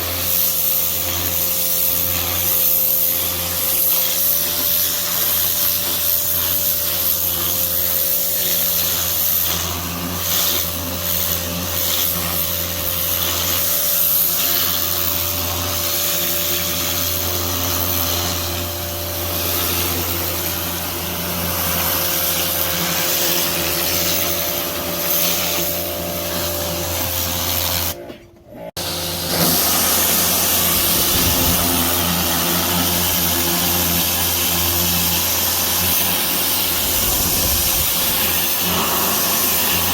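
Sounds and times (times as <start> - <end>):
pressure washer motor hum: 0.0 - 39.9
water spray hiss: 28.8 - 39.9.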